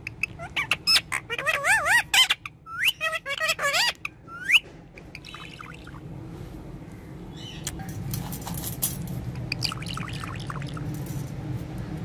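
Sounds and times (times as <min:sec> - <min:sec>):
parrot squawking and whistling: 0:00.0 - 0:06.0.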